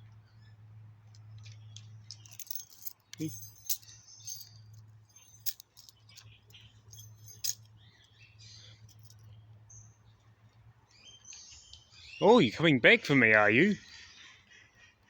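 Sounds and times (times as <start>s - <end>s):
metal chain clinking: 1.4s - 9.3s.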